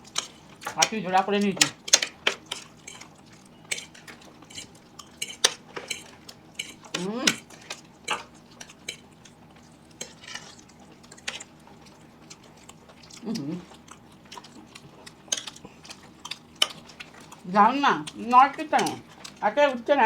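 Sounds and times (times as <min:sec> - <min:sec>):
utensils clicking on plates: 0:00.0 - 0:09.1, 0:18.2 - 0:19.8.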